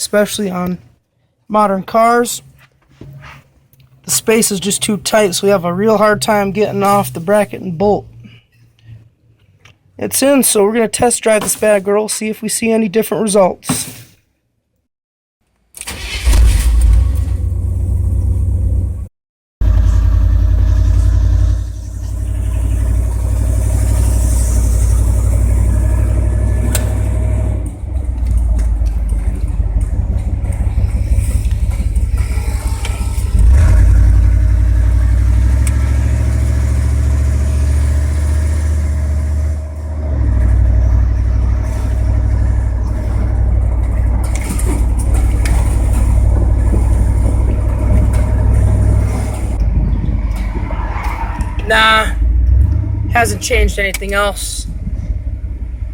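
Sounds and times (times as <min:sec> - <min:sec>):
truck engine droning under load: 0:16.0 - 0:55.9.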